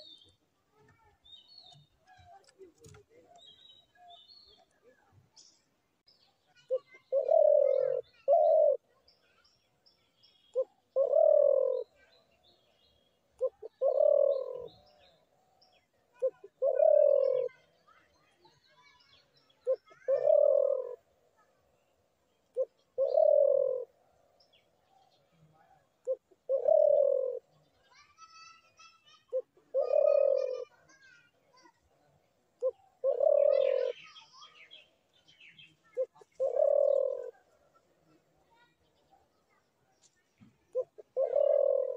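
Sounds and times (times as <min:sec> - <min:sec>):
small birds chirping: 0:00.0 - 0:41.9
dove cooing: 0:06.7 - 0:09.0, 0:10.5 - 0:12.1, 0:13.4 - 0:15.0, 0:16.2 - 0:17.7, 0:19.6 - 0:21.1, 0:22.5 - 0:24.0, 0:25.6 - 0:27.5, 0:29.3 - 0:30.9, 0:32.6 - 0:34.2, 0:35.9 - 0:38.2, 0:40.6 - 0:41.9.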